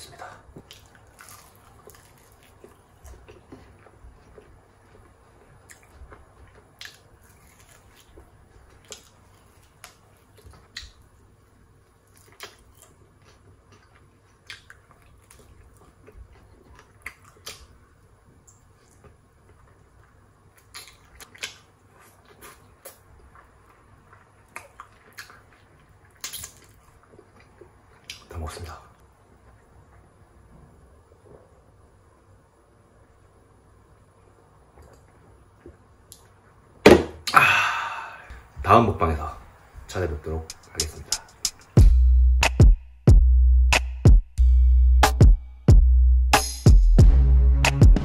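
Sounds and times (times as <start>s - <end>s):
soft crunches and mouth clicks: 0.1s - 30.1s, 34.3s - 36.5s
chewing and biting food: 0.5s - 11.2s, 12.0s - 28.3s.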